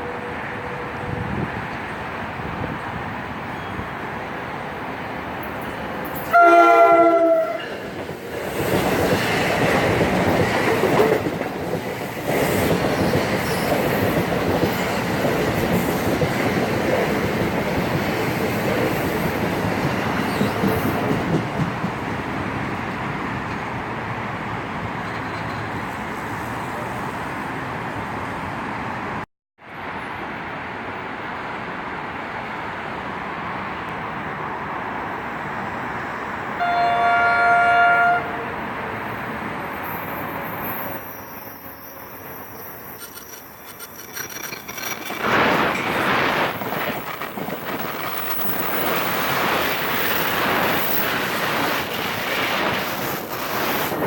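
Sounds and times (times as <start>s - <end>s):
train running on rails: 0.0s - 54.0s
train horn blast: 6.3s - 7.7s, 36.6s - 38.6s.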